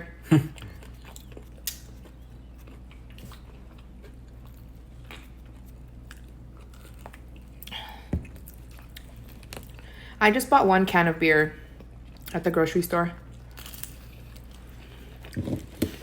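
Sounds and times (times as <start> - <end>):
person chewing food: 0.3 - 10.0, 13.3 - 16.0.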